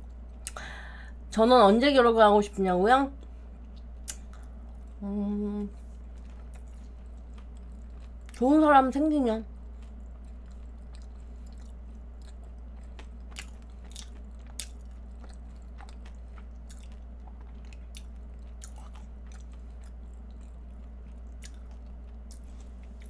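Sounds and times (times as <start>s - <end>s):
low hum: 0.0s - 23.0s
chewing pastry: 5.7s - 23.0s.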